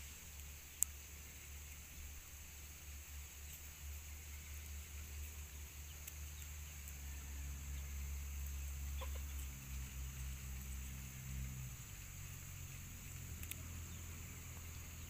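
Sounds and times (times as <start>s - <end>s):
low steady hum: 0.0s - 15.0s
chickens clucking: 8.4s - 10.3s
chicken call: 9.0s - 9.5s.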